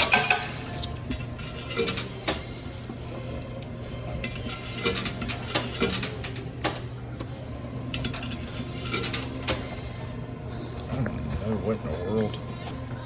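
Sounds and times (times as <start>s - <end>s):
coins clinking and dropping: 0.0s - 6.9s, 7.9s - 10.1s
low machine hum: 0.0s - 13.0s.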